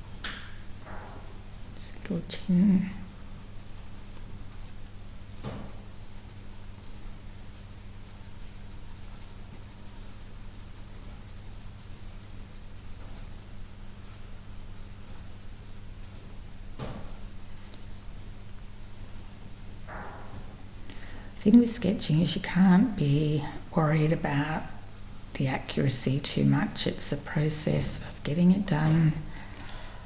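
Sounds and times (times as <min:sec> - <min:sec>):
pencil scratching on paper: 0:02.2 - 0:04.8, 0:05.7 - 0:15.8, 0:16.5 - 0:17.9, 0:18.6 - 0:20.0, 0:20.6 - 0:28.0.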